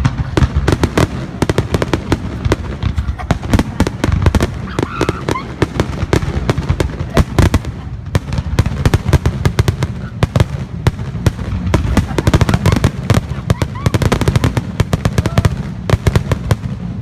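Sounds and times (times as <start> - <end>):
deep fireworks booms: 0.0 - 17.0
fireworks bangs: 0.0 - 17.0.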